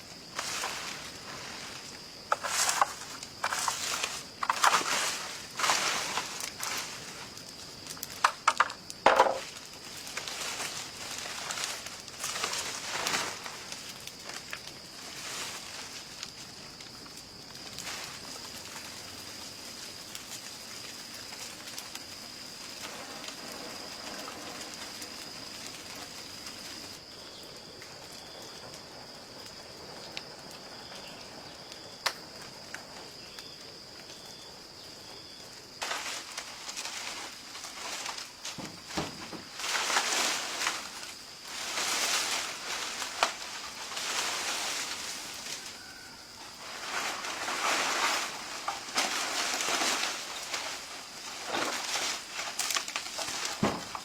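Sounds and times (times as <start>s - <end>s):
outdoor ambience: 0.0s - 54.0s
rough scraping bursts: 0.4s - 7.2s.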